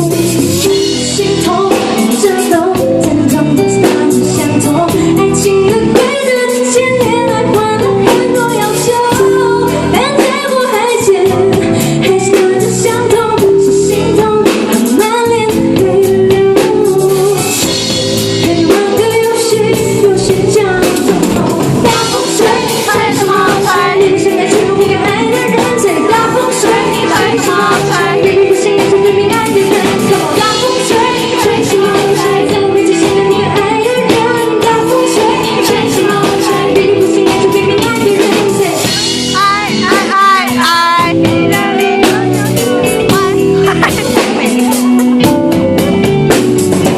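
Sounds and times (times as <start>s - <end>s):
woman singing pop song: 0.0s - 46.0s
band drums and guitar: 0.0s - 46.9s.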